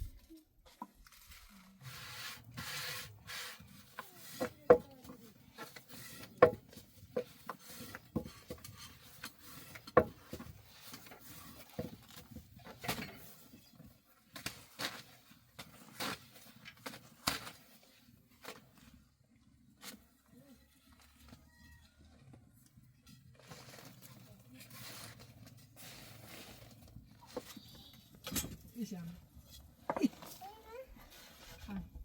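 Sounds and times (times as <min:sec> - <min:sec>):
utensils knocking and scraping: 0:02.4 - 0:13.6.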